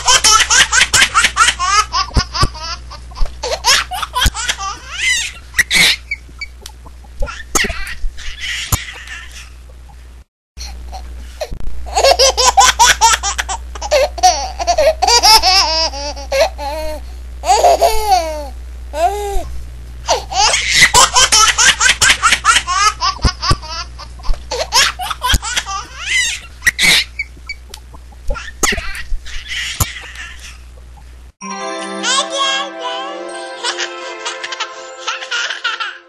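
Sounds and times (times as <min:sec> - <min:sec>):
baby laughing: 0:00.0 - 0:06.2, 0:07.2 - 0:09.6, 0:11.9 - 0:19.2, 0:20.1 - 0:27.3, 0:28.3 - 0:30.6, 0:33.6 - 0:36.0.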